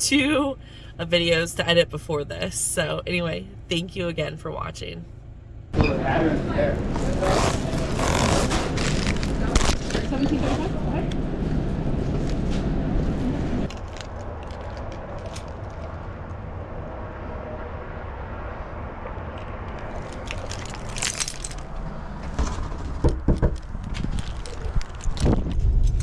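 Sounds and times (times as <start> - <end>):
car low rumble: 0.0 - 26.0
sharp clicks and knocks: 19.8 - 25.4.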